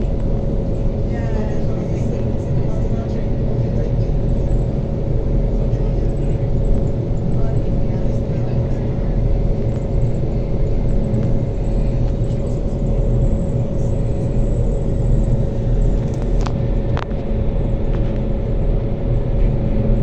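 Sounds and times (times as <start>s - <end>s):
constant whine: 0.0s - 20.0s.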